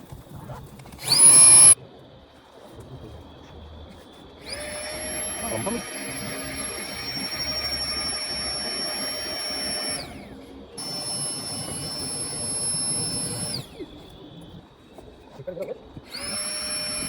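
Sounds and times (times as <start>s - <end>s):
small electric motor whining: 0.9s - 1.8s, 4.4s - 14.6s, 16.1s - 17.0s.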